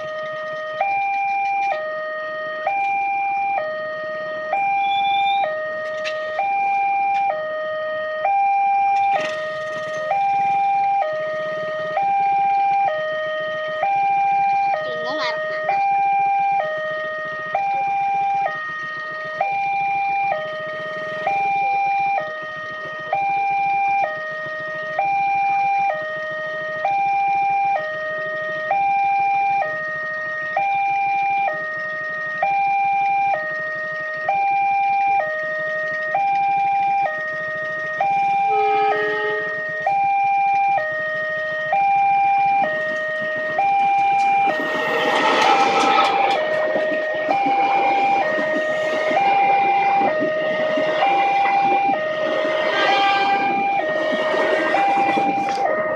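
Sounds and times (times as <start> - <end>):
level crossing two-tone alarm: 0.0 - 55.9
loud rushing noise: 43.3 - 55.9.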